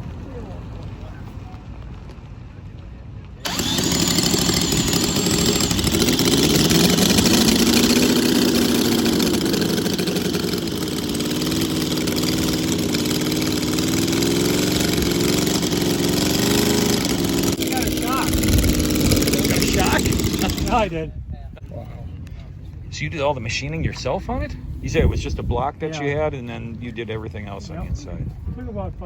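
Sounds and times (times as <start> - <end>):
car engine revving and idling: 3.5 - 20.9.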